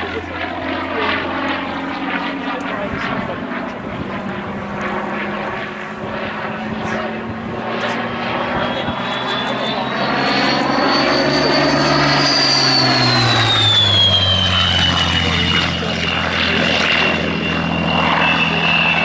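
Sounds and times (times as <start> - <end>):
propeller plane flying past: 0.0 - 19.0
high whistle: 8.6 - 15.2.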